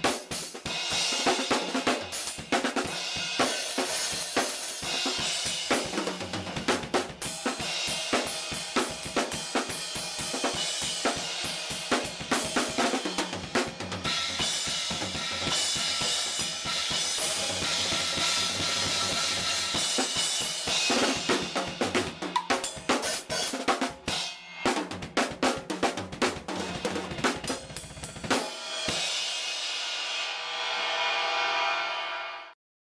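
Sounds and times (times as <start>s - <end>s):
drum kit playing: 0.0s - 32.2s
crash cymbal ringing: 28.5s - 32.5s.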